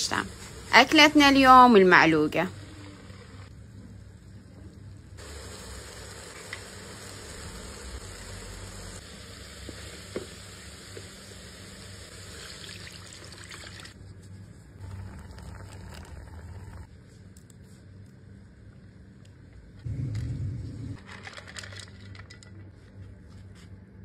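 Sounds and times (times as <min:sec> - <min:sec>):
tomato sizzling in hot oil: 0:05.2 - 0:13.9.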